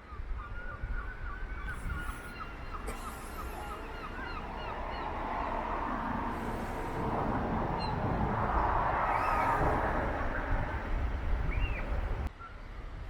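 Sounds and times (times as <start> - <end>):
gulls calling: 1.6 - 7.0
steady street rumble: 1.8 - 12.8.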